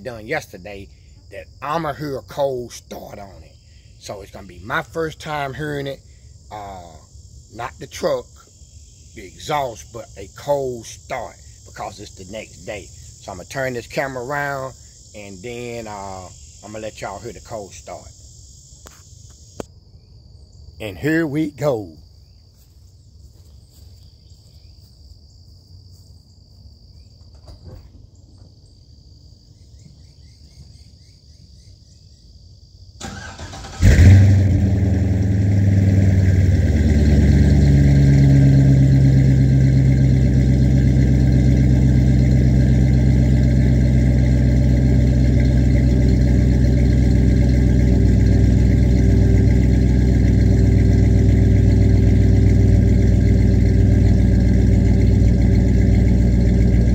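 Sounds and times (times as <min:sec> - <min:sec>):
crickets chirping: 0:00.0 - 0:56.9
car engine starting and idling: 0:33.0 - 0:56.9.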